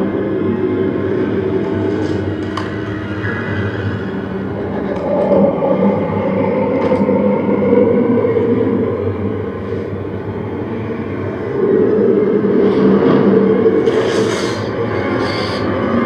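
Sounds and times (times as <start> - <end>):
train carriage rumbling on rails: 0.0 - 16.0.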